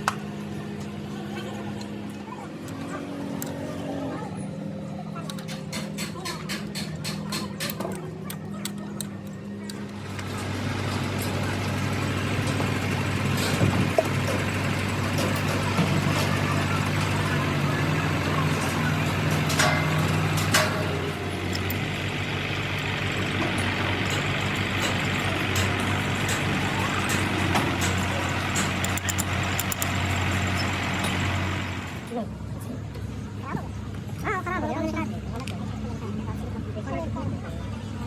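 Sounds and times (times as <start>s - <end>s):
motor humming: 8.3s - 32.2s.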